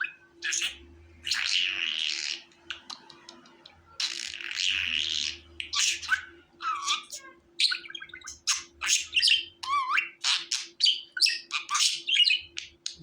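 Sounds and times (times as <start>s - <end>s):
budgerigar chirping: 0.0s - 13.0s
budgerigar warble: 4.0s - 13.0s.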